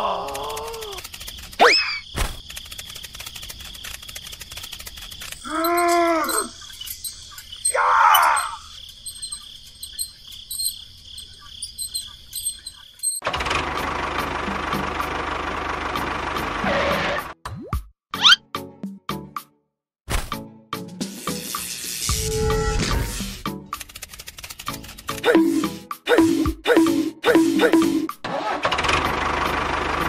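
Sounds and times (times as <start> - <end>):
tractor engine running: 0.2 - 5.5, 11.2 - 17.2, 23.6 - 30.0
high chirring with fast clicking: 0.2 - 13.2.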